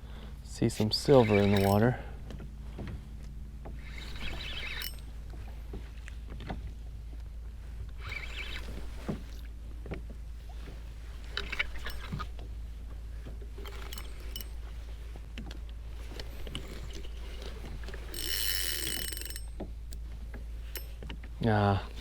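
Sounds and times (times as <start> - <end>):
water sloshing against hull: 0.0 - 22.0
fishing reel winding: 0.8 - 2.0, 3.8 - 5.1, 8.0 - 8.9, 11.4 - 12.3, 13.6 - 14.6, 16.2 - 20.0.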